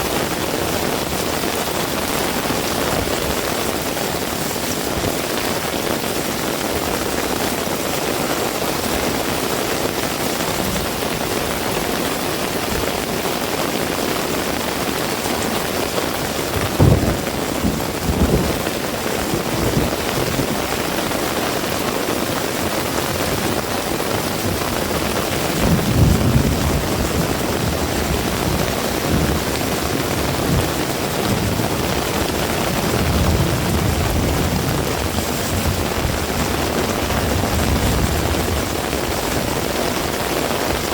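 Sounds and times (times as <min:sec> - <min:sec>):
heavy rain hissing: 0:00.0 - 0:40.9
low rumbles: 0:16.6 - 0:18.6.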